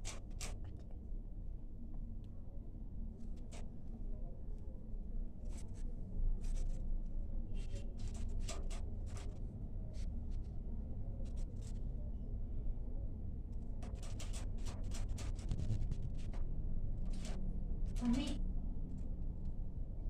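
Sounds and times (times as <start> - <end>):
short scratching and clicking: 0.0 - 0.8, 7.6 - 9.4, 13.8 - 16.4, 17.0 - 18.4
low steady rumble: 0.0 - 20.0.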